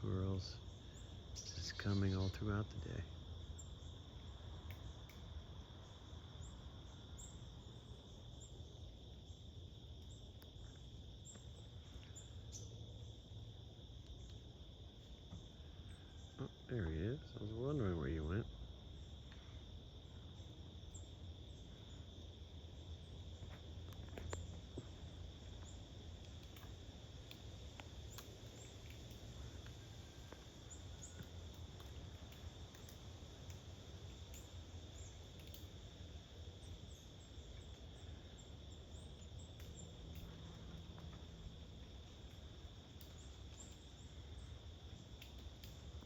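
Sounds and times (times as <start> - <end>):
high-pitched insect chorus: 0.0 - 46.0
low background hum: 0.0 - 46.0
light ticks: 4.6 - 5.3, 23.5 - 35.8, 39.2 - 44.0, 45.0 - 46.0.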